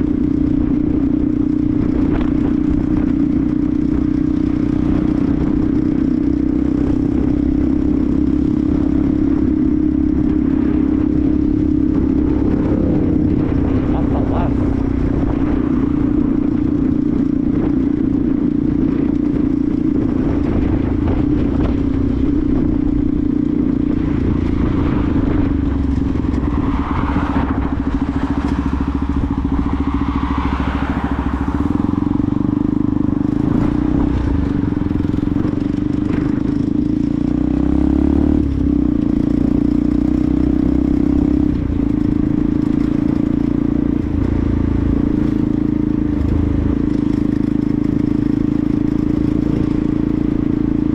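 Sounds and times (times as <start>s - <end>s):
motorcycle engine running: 0.0s - 50.9s
wind on helmet camera: 0.0s - 50.9s
passing whoosh: 24.0s - 36.5s.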